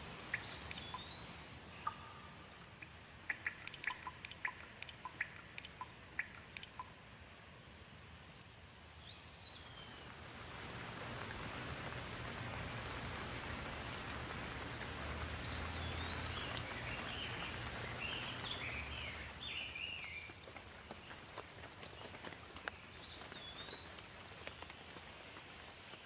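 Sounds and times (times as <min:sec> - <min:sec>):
steady rain: 0:00.0 - 0:26.0
bird chirping: 0:00.2 - 0:07.0, 0:08.8 - 0:10.1, 0:11.9 - 0:21.2, 0:21.8 - 0:24.9.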